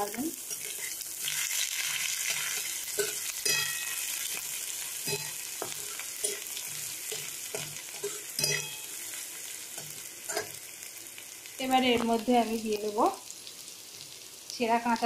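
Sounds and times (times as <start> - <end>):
spatula scraping and stirring pan: 0.0 - 10.9
oil sizzling: 0.0 - 15.0.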